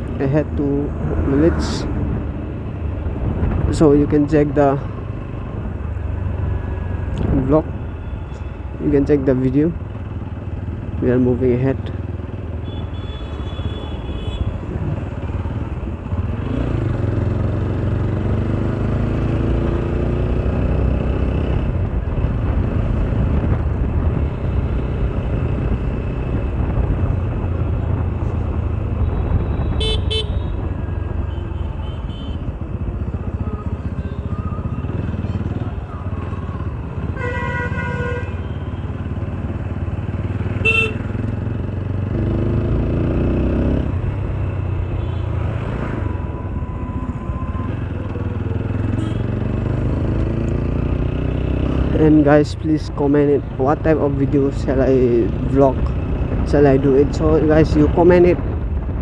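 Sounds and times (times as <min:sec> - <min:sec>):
vehicle horns beeping: 0:12.6 - 0:14.6, 0:29.4 - 0:30.6, 0:31.3 - 0:32.5, 0:40.6 - 0:41.1, 0:48.9 - 0:49.3
motorcycle engine running: 0:21.6 - 0:45.5.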